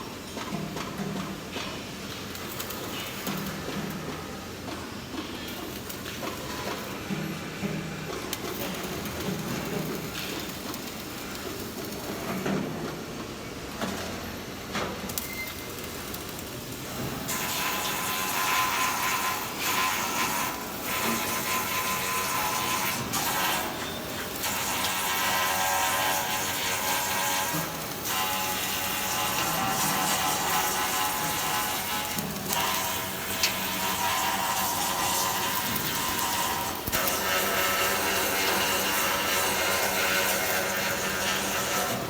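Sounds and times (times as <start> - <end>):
welding arc crackling hiss: 15.1 - 42.0.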